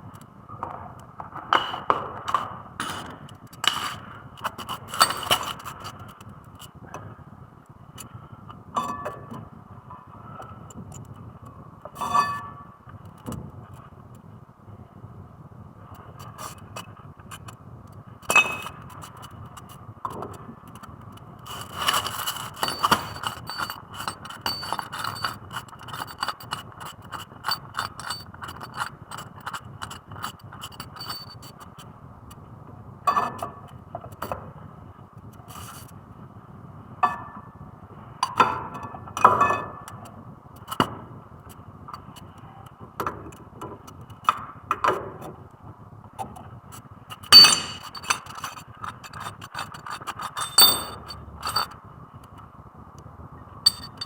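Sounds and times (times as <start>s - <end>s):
metal clinks and knocks: 4.6s - 5.9s, 21.5s - 31.5s, 47.2s - 51.8s, 53.7s - 54.0s.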